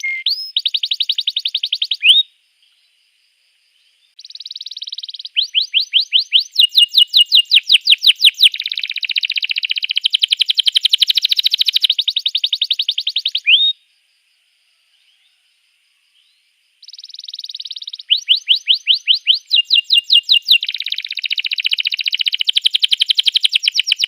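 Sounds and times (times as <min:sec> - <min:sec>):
canary singing in fast trills: 0:00.0 - 0:02.2, 0:04.2 - 0:13.7, 0:16.8 - 0:24.0.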